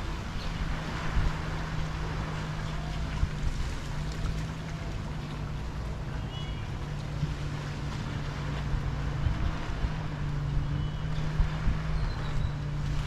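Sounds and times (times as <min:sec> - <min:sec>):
sea water lapping at beach: 0:00.0 - 0:13.0.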